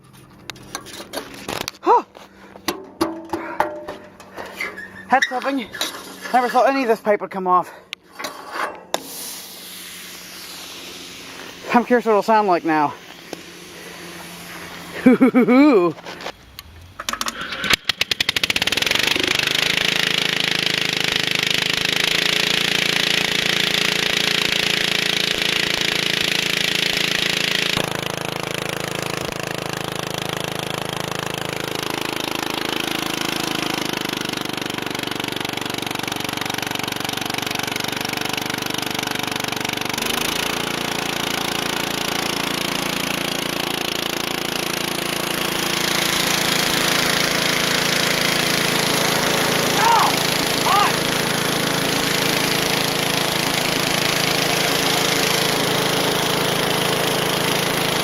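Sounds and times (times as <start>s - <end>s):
garden tractor engine running: 0.0s - 9.0s, 10.3s - 58.0s
loud hiss: 8.9s - 16.0s.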